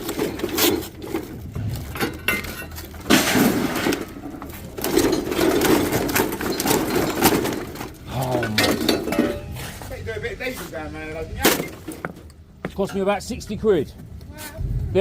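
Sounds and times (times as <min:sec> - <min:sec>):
metal and glass items clinking: 0:00.0 - 0:09.6
rustling of scrap: 0:00.0 - 0:10.8.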